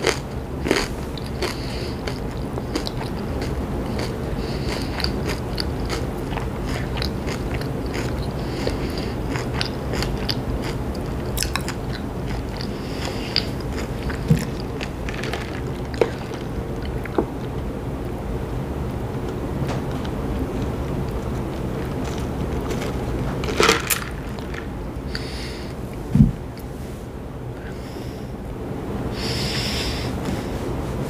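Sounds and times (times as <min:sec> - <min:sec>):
chewing with mouth clicks: 0:00.0 - 0:17.6, 0:20.0 - 0:25.3
low background rumble: 0:00.0 - 0:31.0.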